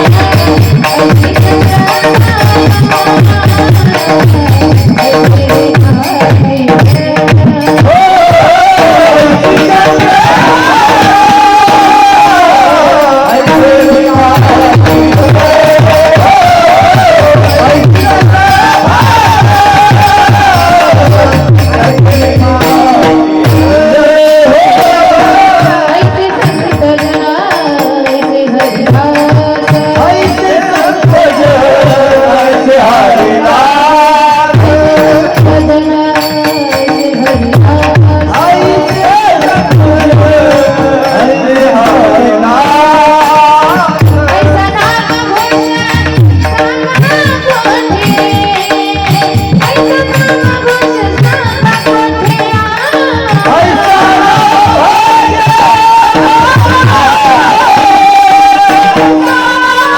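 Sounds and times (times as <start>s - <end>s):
woman singing devotional song: 0.0s - 59.9s.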